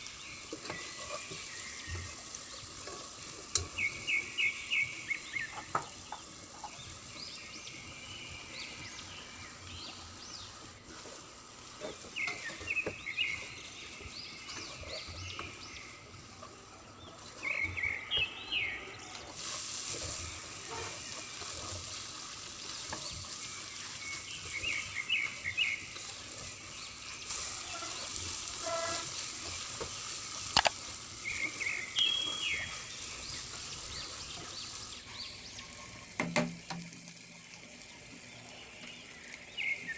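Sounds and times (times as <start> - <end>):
small birds chirping: 0.0 - 36.2, 37.0 - 39.9
food sizzling in a pan: 0.0 - 39.9
bright hiss: 25.8 - 39.9.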